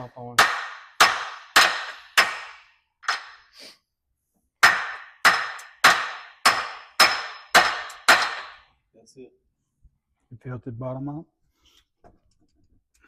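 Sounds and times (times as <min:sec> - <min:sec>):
hammer blows with metallic ring: 0:04.6 - 0:08.6.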